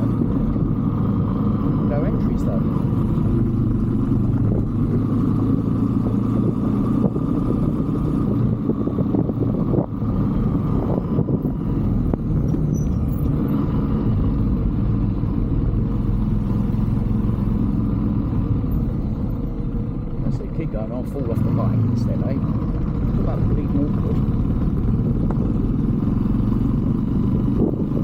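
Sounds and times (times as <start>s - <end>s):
motorbike engine running: 0.0s - 28.0s.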